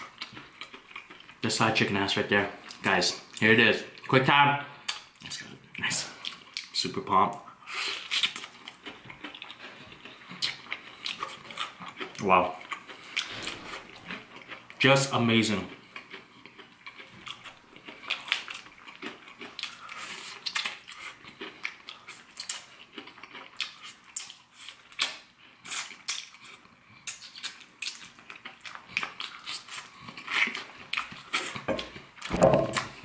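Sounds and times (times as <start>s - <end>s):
person crunching fried chicken: 15.7s - 31.6s.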